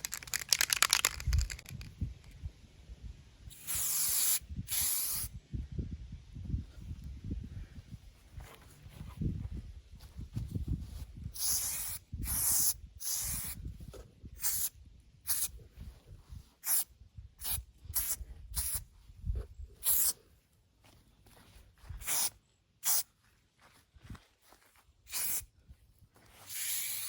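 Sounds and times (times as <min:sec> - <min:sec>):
spray paint can hissing: 0:00.0 - 0:01.9, 0:03.5 - 0:05.3, 0:11.4 - 0:13.6, 0:14.4 - 0:15.5, 0:16.6 - 0:18.8, 0:19.8 - 0:20.2, 0:22.0 - 0:23.0, 0:25.1 - 0:25.4, 0:26.5 - 0:27.0
wind rumble on microphone: 0:01.0 - 0:03.5, 0:04.4 - 0:19.8.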